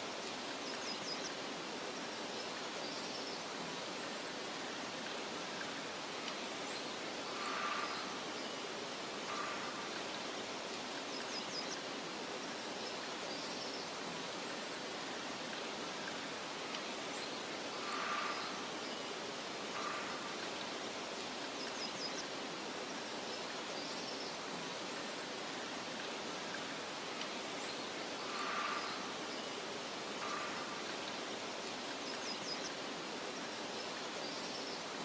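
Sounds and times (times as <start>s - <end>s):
faint bird calls: 4.7s - 11.9s, 16.0s - 22.4s, 26.3s - 35.0s.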